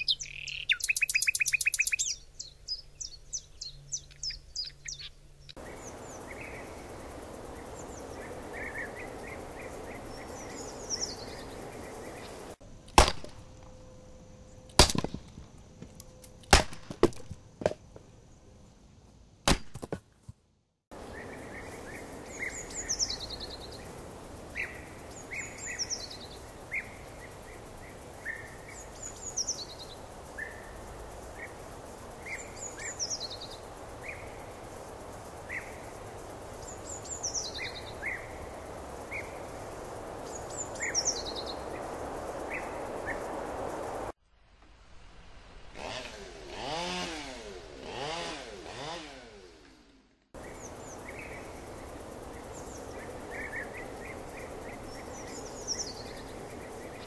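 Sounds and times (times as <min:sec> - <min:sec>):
bird chirps: 0:00.0 - 0:12.6, 0:21.0 - 0:43.8, 0:50.4 - 0:57.0
birdsong with falling phrase: 0:00.0 - 0:12.6, 0:21.0 - 0:39.5
steady background hiss: 0:00.0 - 0:19.6, 0:20.9 - 0:57.0.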